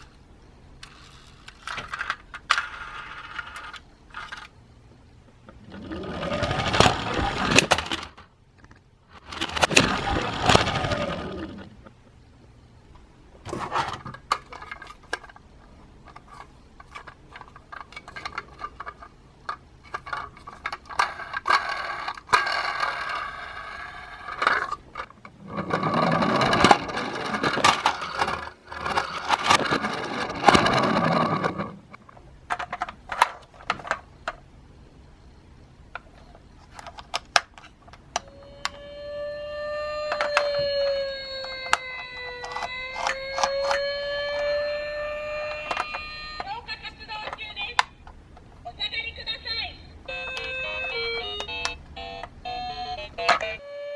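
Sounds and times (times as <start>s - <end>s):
toy cars clattering on plastic track: 0.8s - 4.5s, 5.8s - 8.3s, 9.2s - 11.6s, 16.1s - 31.8s, 40.1s - 43.8s.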